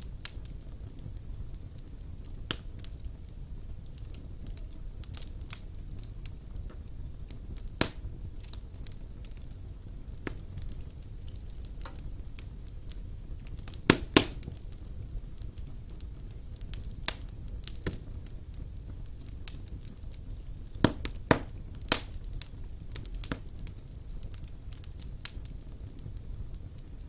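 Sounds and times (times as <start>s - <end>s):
logs crackling and popping: 0.0s - 27.0s
low rumble of flames: 0.0s - 27.0s.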